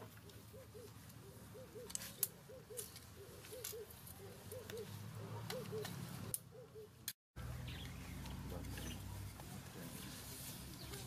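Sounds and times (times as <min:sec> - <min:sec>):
bird calling: 0:00.2 - 0:07.0.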